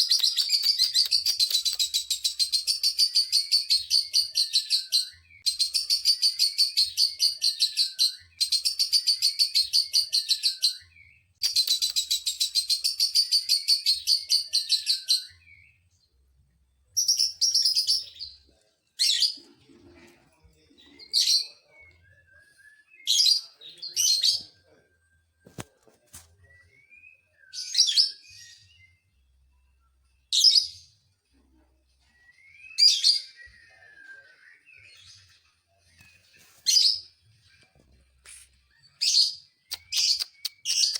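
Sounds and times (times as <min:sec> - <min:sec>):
lovebird chattering trill: 0:00.0 - 0:02.4.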